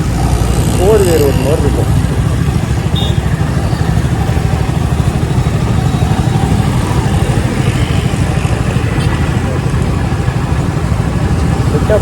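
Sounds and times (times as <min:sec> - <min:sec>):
motorcycle engine running: 0:00.0 - 0:12.0
traffic noise: 0:00.0 - 0:12.0
wind rush: 0:03.5 - 0:11.8.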